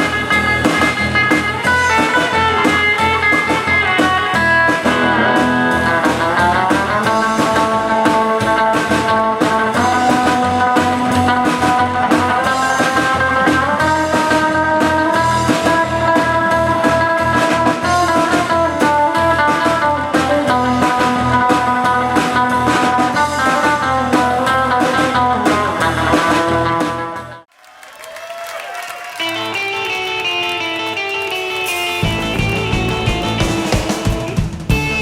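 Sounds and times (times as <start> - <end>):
rockabilly band music: 0.0 - 27.5, 28.8 - 35.0
guitar note sliding up: 1.6 - 7.3.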